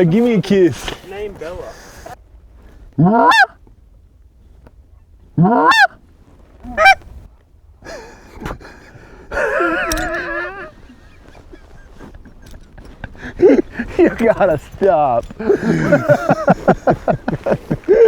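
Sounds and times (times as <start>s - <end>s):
goose call honks: 3.0s - 3.6s, 5.4s - 6.0s, 6.6s - 7.1s.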